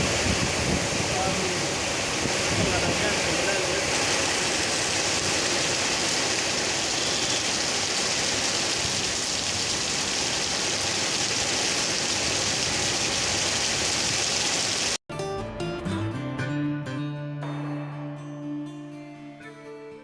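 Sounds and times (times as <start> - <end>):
heavy rain falling: 0.0 - 15.0
acoustic guitar music: 15.1 - 20.0.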